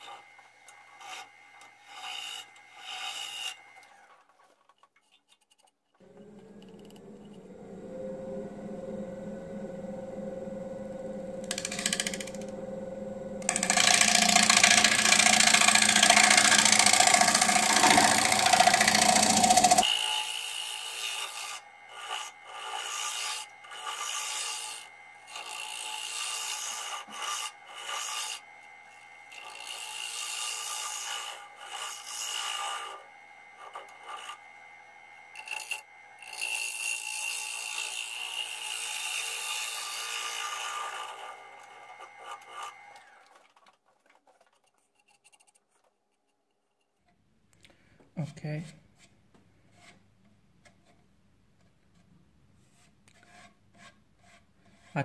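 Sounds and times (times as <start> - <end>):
lathe motor hum: 6.0 - 19.8
lathe tool cutting wood hiss: 6.0 - 19.8.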